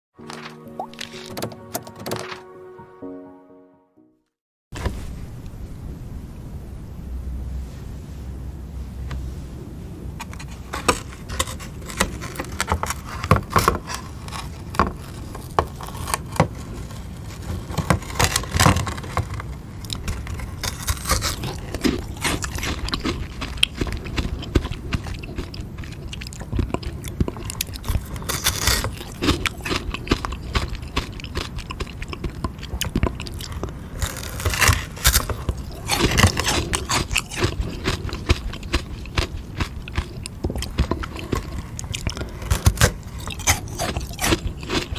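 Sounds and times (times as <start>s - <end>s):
crunching ice lolly: 10.2s - 44.9s.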